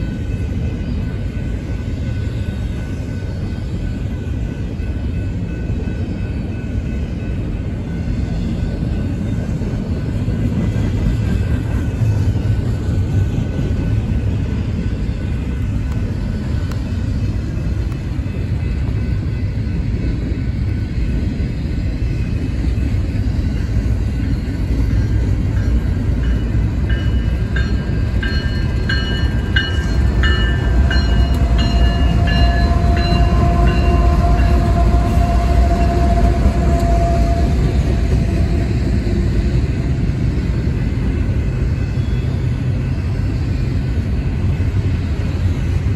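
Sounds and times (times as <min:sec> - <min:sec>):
freight train wheels rumbling: 0:00.0 - 0:45.9
high-pitched wheel squeals: 0:29.6 - 0:39.0.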